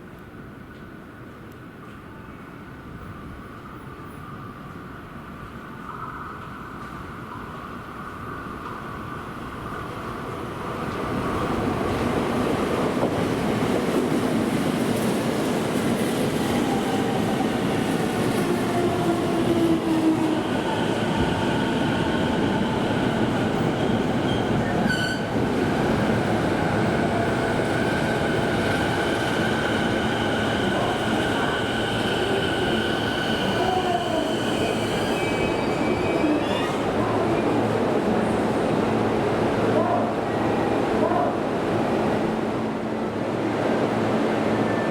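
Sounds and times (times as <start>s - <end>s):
subway train wheels rumbling: 0.0s - 44.9s.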